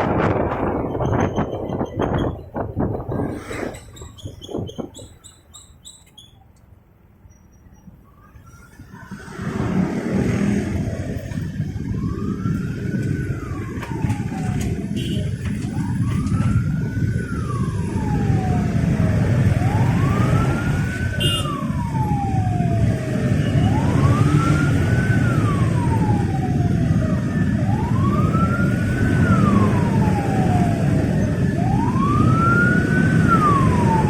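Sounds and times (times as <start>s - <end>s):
traffic: 0.0s - 34.0s
emergency siren wailing: 8.1s - 34.0s
motorcycle engine drone: 8.6s - 34.0s.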